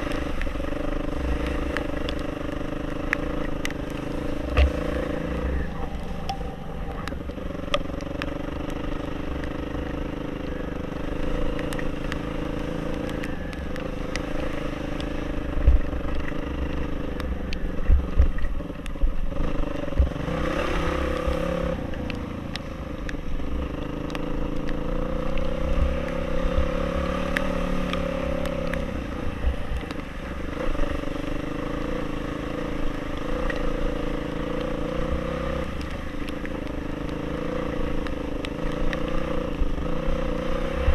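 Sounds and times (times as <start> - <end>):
motorcycle engine revving: 0.0 - 40.9
heavy low rumble: 2.9 - 9.5, 13.0 - 20.2
thumps: 4.4 - 7.8.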